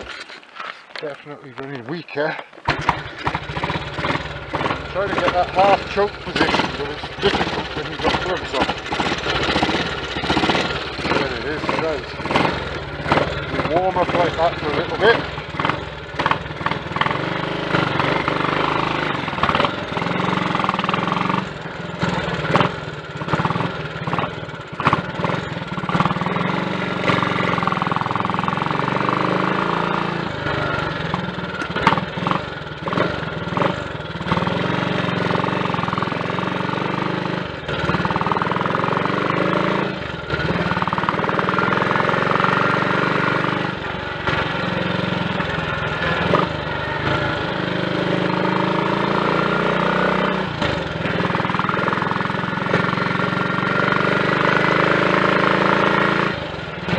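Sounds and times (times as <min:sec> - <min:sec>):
short engine knocks: 0:00.0 - 0:21.4, 0:29.0 - 0:36.8
single-cylinder engine running: 0:00.0 - 0:56.9.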